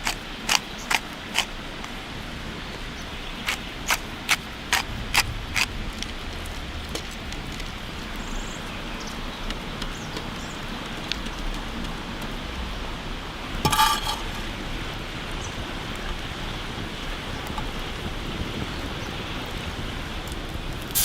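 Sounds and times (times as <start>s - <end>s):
cooking hiss with small ticks: 0.0s - 21.0s
cooking utensil clink: 13.7s - 14.6s.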